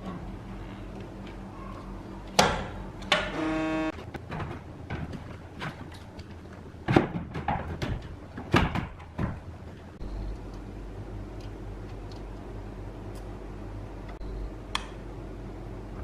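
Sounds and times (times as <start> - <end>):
steady low hum: 0.0 - 16.0
hard objects knocking and clattering: 4.0 - 9.8.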